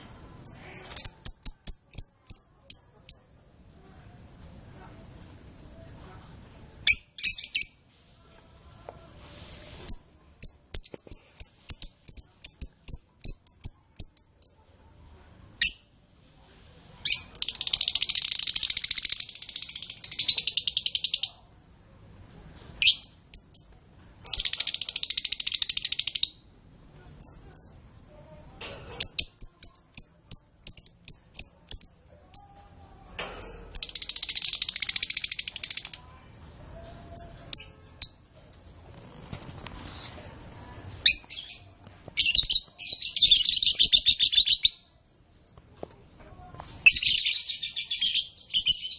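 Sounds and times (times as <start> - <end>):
canary singing chirps and trills: 0.3 - 3.5, 6.8 - 7.9, 9.9 - 14.7, 17.1 - 21.6, 22.8 - 26.5, 29.0 - 36.1, 36.8 - 38.4, 40.8 - 45.9, 46.7 - 48.9.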